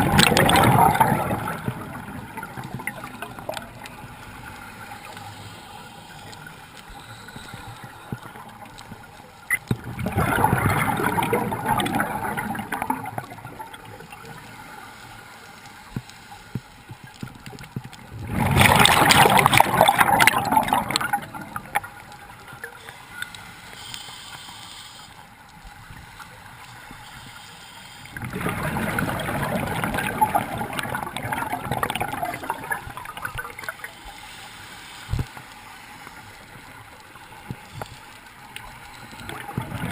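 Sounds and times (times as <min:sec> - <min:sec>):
exhaled bubbles underwater: 0:00.0 - 0:04.4, 0:08.1 - 0:14.4, 0:17.9 - 0:22.7, 0:28.1 - 0:33.9, 0:38.7 - 0:39.9
regulator hiss: 0:04.5 - 0:08.2, 0:22.7 - 0:25.3, 0:27.0 - 0:28.2.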